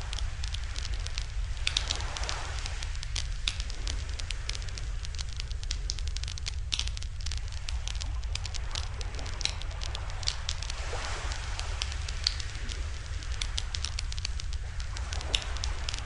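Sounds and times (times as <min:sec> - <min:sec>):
campfire crackling and popping: 0:00.0 - 0:16.0
low rumble: 0:00.0 - 0:16.0.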